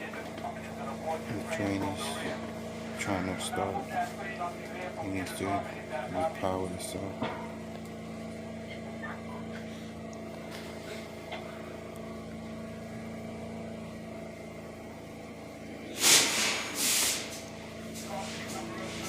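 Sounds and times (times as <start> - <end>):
subway car electrical hum: 0.0 - 19.0
loud hiss bursts: 16.0 - 17.4.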